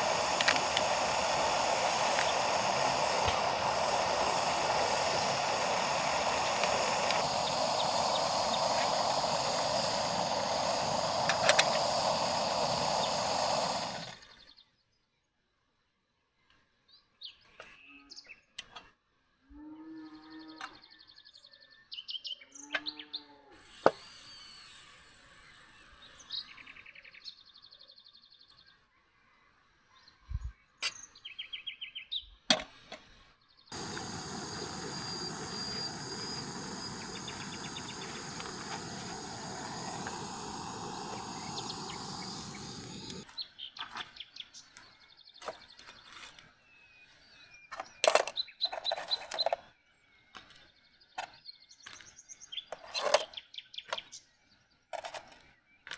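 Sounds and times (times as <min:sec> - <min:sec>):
birds chirping: 0:00.0 - 0:14.2, 0:33.7 - 0:44.7
steady rushing noise: 0:00.0 - 0:14.2, 0:33.8 - 0:43.3.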